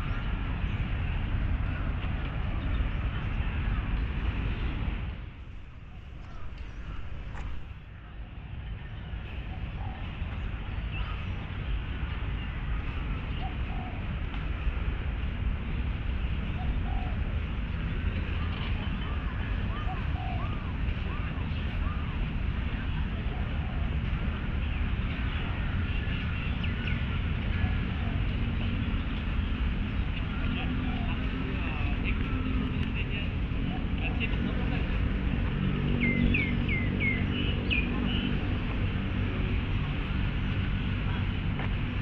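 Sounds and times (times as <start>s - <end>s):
city traffic rumble: 0.0s - 42.0s
birds calling: 5.4s - 8.0s, 9.3s - 14.8s, 16.2s - 42.0s
dove cooing: 16.6s - 17.2s, 19.1s - 22.0s, 23.2s - 24.0s.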